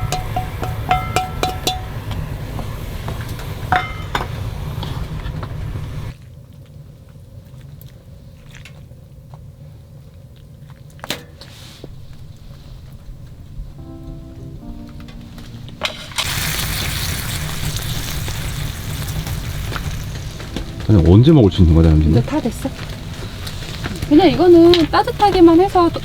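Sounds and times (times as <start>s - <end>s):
metal utensils clinking on cookware: 0.0s - 5.8s
low rumble: 11.9s - 26.0s.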